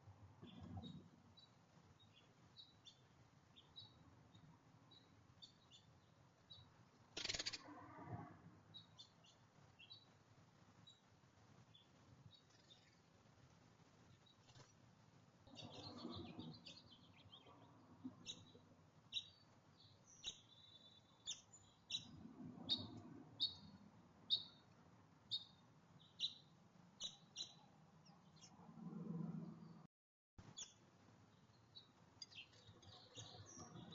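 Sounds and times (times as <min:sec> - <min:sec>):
songbird chirping: 0:00.4 - 0:10.2, 0:15.5 - 0:28.7, 0:30.4 - 0:33.9.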